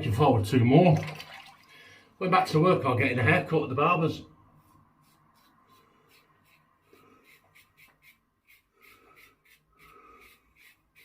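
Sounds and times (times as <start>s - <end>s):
razor scraping stubble: 4.6s - 11.0s.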